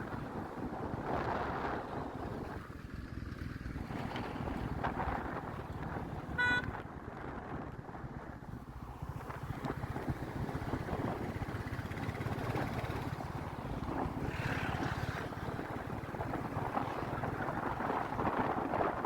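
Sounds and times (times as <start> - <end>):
wind noise on microphone: 0.0 - 19.0
motorcycle engine running: 8.4 - 19.0.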